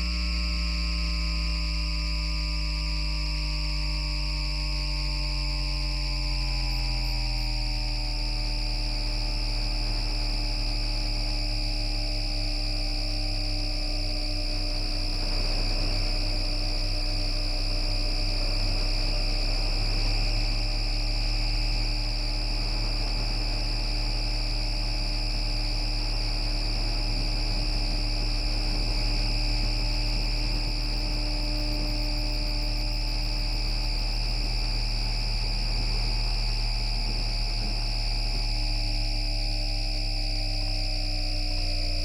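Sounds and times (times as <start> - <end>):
low hum: 0.0 - 42.0
tram motors whining: 8.3 - 39.2.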